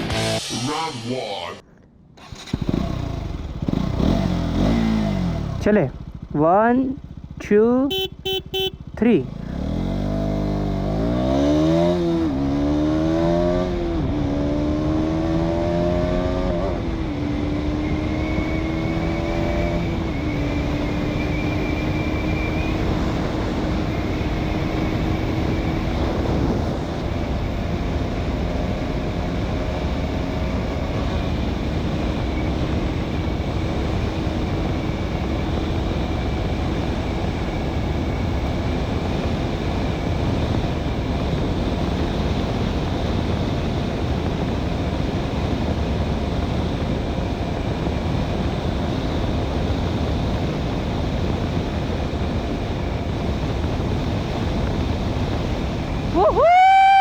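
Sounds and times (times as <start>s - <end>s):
motorcycle engine accelerating: 2.2s - 57.0s.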